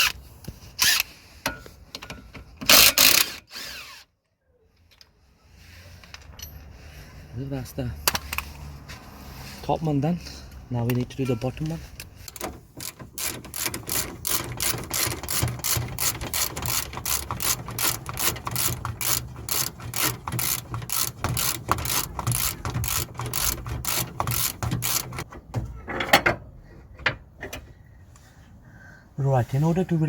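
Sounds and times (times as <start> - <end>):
socket ratchet clicking: 12.2 - 25.3.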